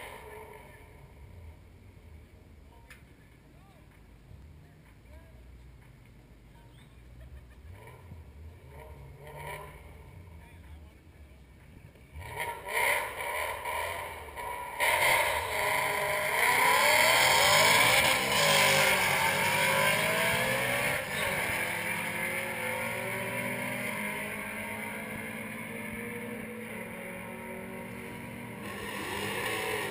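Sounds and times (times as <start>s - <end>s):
car engine revving: 7.7s - 10.4s, 12.1s - 29.9s.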